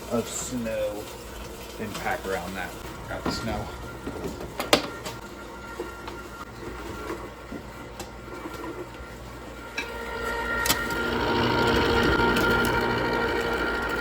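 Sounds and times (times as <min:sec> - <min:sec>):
ice cream maker motor whirring: 0:00.0 - 0:14.0.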